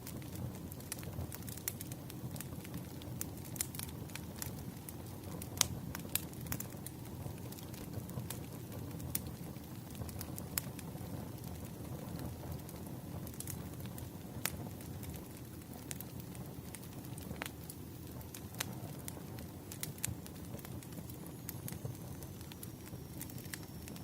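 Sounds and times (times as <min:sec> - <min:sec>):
firewood crackling and popping: 0:00.0 - 0:24.0
low rush of flame: 0:00.0 - 0:24.0.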